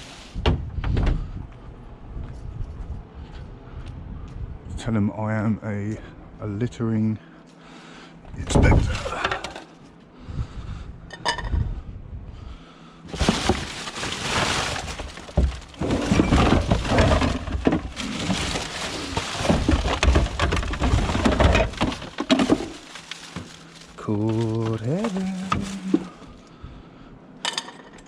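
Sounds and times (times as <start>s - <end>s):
scrap metal clattering: 13.1s - 26.3s.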